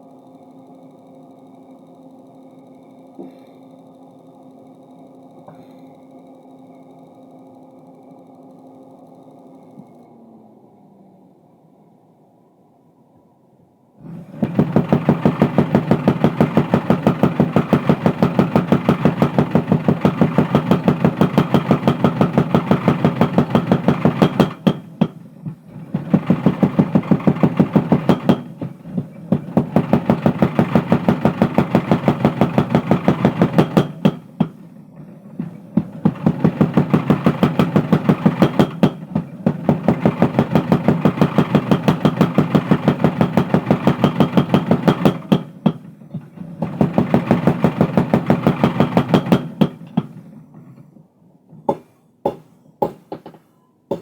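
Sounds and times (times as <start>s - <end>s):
power hammer striking hot steel: 14.0s - 34.8s, 35.4s - 46.0s, 46.6s - 50.3s, 51.7s - 54.0s.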